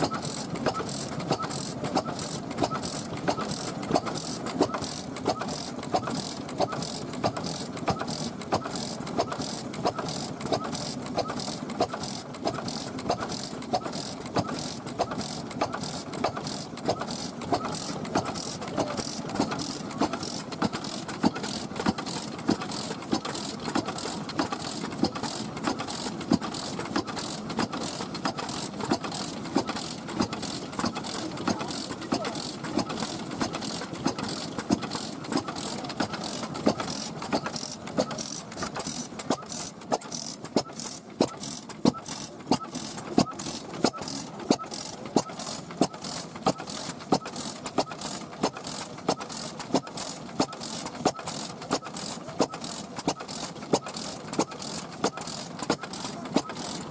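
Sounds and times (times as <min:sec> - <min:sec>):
stationary engine exhaust beats: 0:00.0 - 0:56.9
steady mechanical hum: 0:00.0 - 0:56.9.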